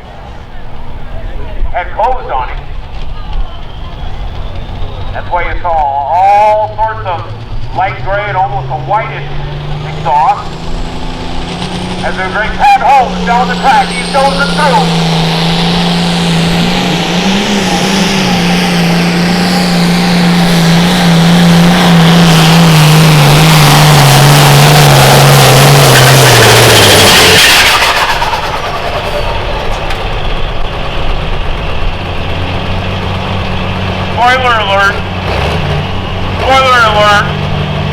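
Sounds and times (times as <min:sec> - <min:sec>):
engine running under heavy load: 0:00.0 - 0:37.9.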